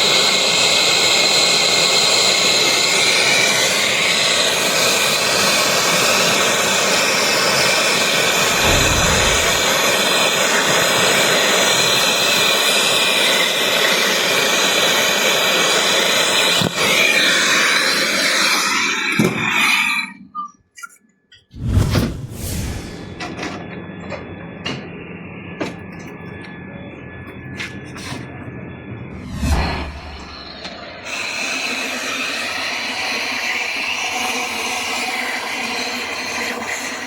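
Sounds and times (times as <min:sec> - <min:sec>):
loud hissing rush: 0:08.3 - 0:10.3.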